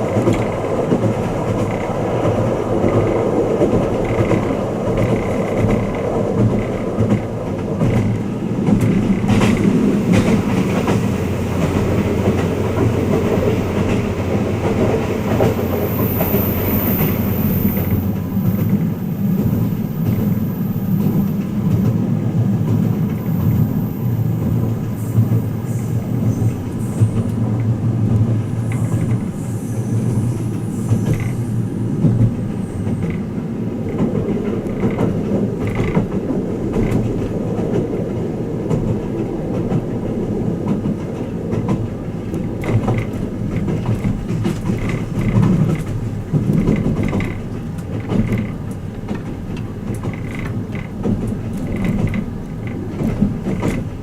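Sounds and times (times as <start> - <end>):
train running rumble: 0.0 - 54.0
carriage clicks and creaks: 42.3 - 53.9.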